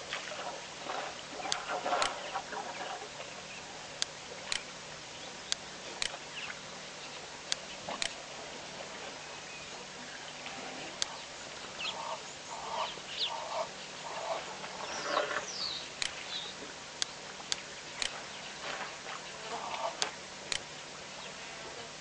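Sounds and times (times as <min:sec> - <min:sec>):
sharp clicks: 0:04.0 - 0:04.7, 0:16.0 - 0:16.2, 0:20.0 - 0:20.7
birds clucking: 0:09.8 - 0:16.6, 0:17.8 - 0:20.2
bird chirps: 0:11.1 - 0:16.6.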